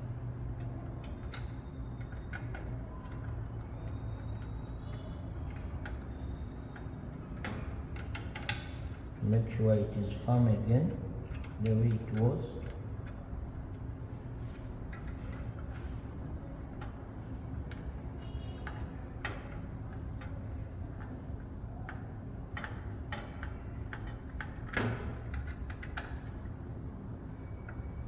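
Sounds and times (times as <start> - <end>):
small clicks and taps from handling metal parts: 0.5 - 9.2, 16.7 - 26.5.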